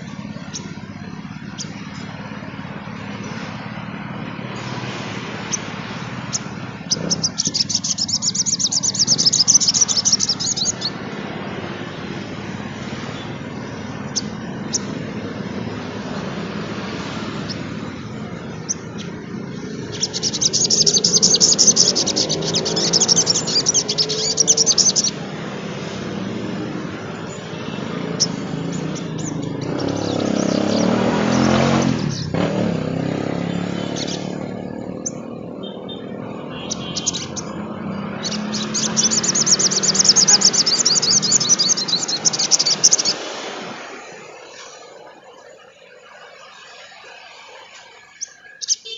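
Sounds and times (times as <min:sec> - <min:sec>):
songbird chattering trills: 0:05.4 - 0:11.0, 0:13.1 - 0:15.3, 0:16.9 - 0:25.3, 0:26.7 - 0:43.3, 0:48.0 - 0:48.9.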